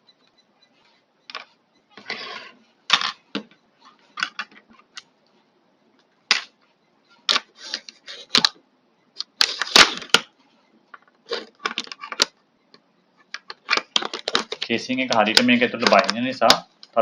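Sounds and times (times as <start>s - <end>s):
plastic parts clicking and scraping: 2.9s - 5.1s, 10.9s - 17.0s.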